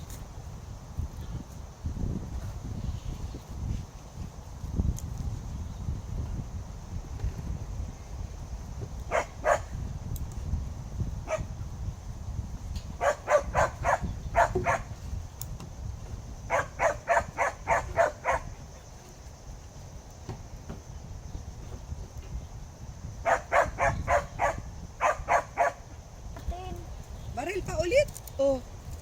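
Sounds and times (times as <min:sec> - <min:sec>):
dog barking: 0:09.1 - 0:09.7, 0:11.3 - 0:11.5, 0:13.0 - 0:14.9, 0:16.5 - 0:18.5, 0:23.2 - 0:25.8.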